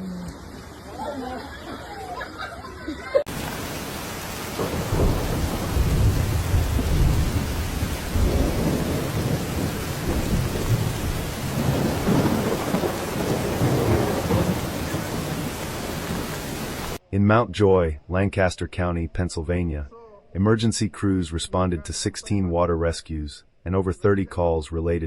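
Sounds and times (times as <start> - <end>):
heavy rain falling: 3.2 - 17.0
deep thunder rumbles: 3.3 - 17.0.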